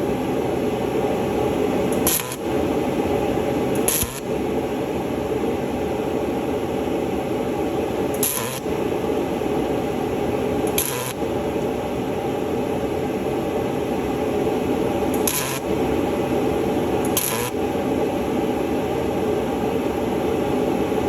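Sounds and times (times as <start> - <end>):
welding arc crackling: 1.9 - 2.6, 3.7 - 4.4, 8.1 - 8.8, 10.7 - 11.3, 15.1 - 15.8, 17.1 - 17.7.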